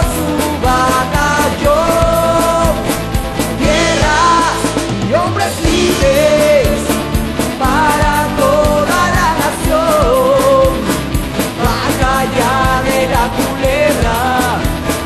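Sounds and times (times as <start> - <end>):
music with steady beat and melody: 0.0 - 15.0.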